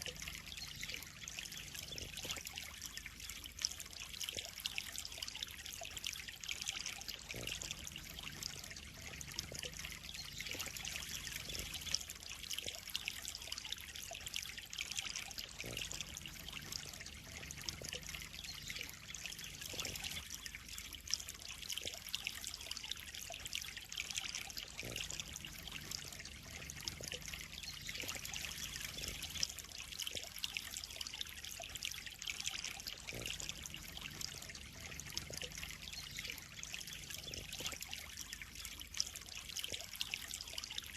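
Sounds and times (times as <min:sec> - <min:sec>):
water trickling into pond: 0:00.0 - 0:40.9.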